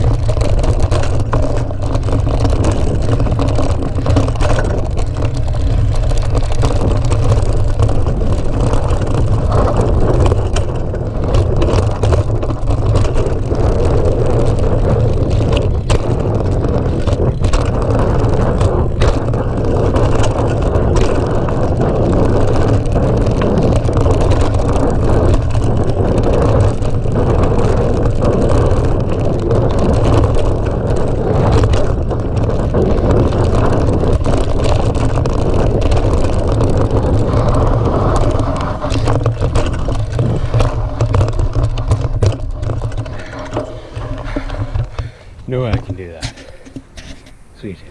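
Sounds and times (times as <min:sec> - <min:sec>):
bike knocks and rattles: 0:00.0 - 0:47.5
wind on microphone: 0:00.0 - 0:47.9.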